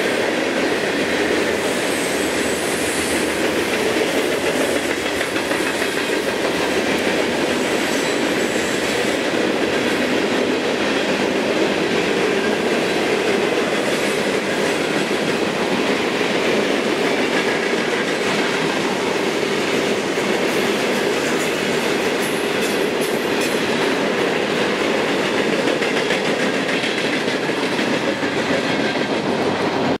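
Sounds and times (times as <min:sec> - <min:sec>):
freight train wheels on rails: 0:00.0 - 0:30.0.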